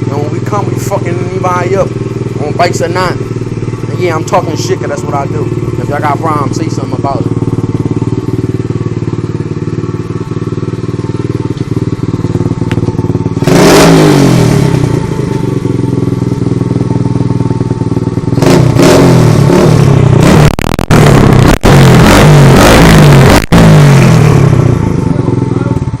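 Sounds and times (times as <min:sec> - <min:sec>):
dirt bike engine revving: 0:00.0 - 0:16.1, 0:18.3 - 0:25.9.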